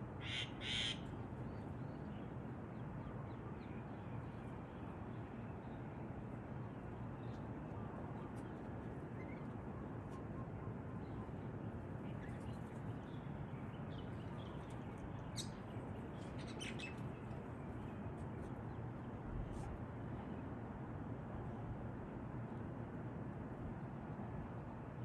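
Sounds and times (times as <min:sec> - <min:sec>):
birds chirping: 0:12.1 - 0:18.5.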